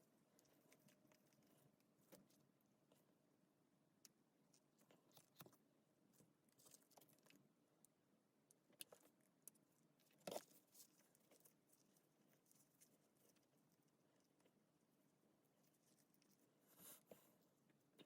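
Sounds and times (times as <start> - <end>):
faint small clicks and taps: 4.0 - 14.6.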